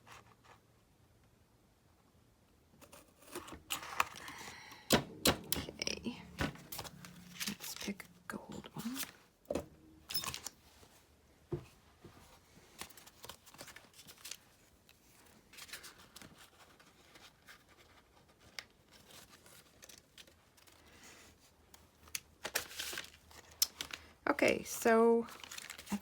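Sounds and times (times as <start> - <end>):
paper rustling and crinkling: 12.2 - 24.1, 25.2 - 26.0.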